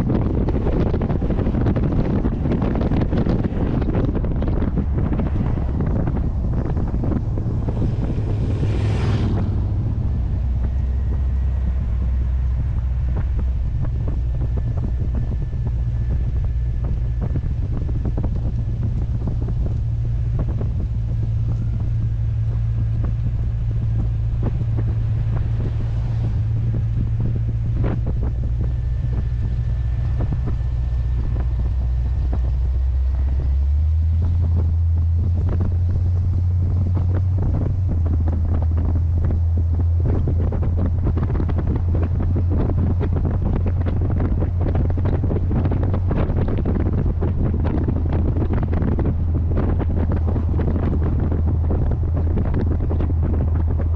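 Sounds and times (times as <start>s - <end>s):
car engine drone: 0.0s - 53.9s
wind buffeting microphone: 0.0s - 53.9s
brief whoosh: 4.6s - 12.0s.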